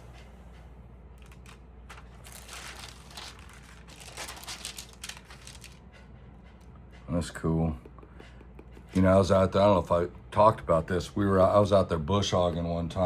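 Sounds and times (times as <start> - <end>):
album pages rustling: 1.4 - 5.7.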